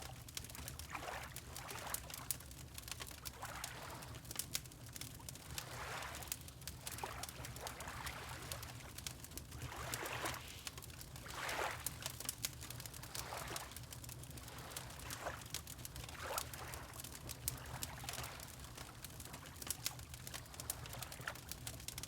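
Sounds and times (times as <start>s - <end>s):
water lapping: 6.9s - 8.8s, 9.6s - 10.7s, 11.3s - 11.9s.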